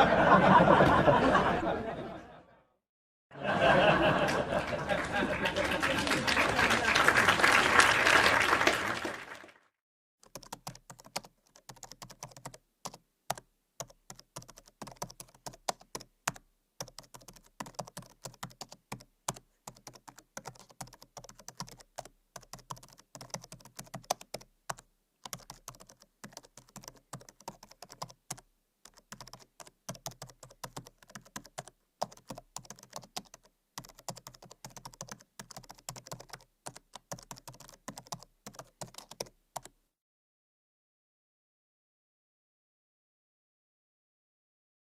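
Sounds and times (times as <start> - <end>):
applause: 4.0 - 9.8
typing on computer keyboard: 10.2 - 39.8.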